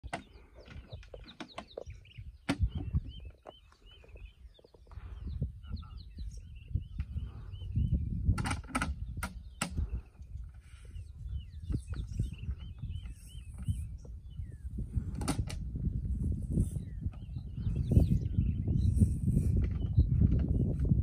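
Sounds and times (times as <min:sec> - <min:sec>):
sharp clicks and knocks: 0:00.0 - 0:03.6, 0:08.3 - 0:09.8
wild birds chirping: 0:00.0 - 0:21.0.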